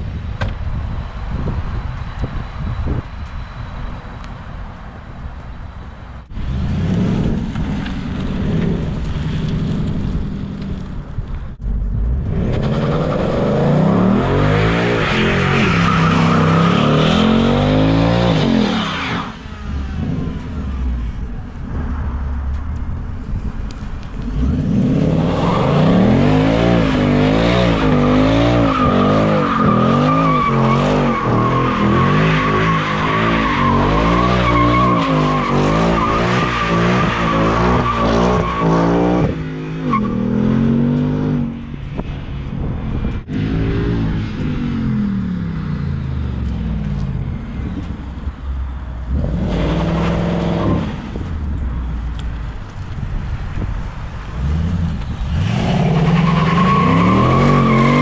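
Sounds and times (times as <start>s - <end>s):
car engine revving: 0.9s - 58.0s
tyres squealing: 55.6s - 58.0s.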